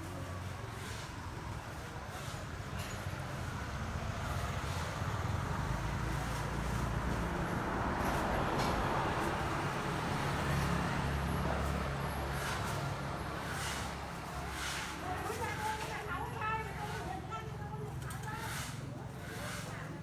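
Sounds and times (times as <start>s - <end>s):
traffic noise: 0.0s - 20.0s
engine low rumble: 1.2s - 14.4s.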